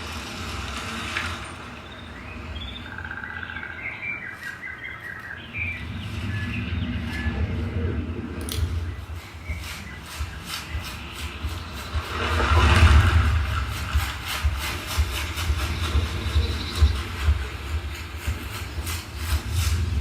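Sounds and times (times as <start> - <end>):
recorded birdsong chirping: 0.0 - 20.0
steady low rumble: 5.0 - 20.0.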